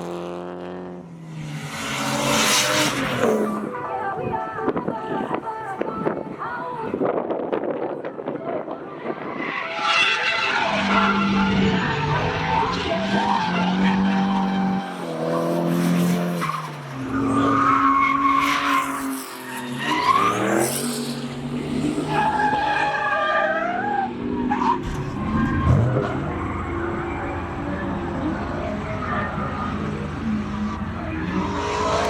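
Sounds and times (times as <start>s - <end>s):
car engine revving: 0.0s - 3.8s, 24.2s - 32.0s.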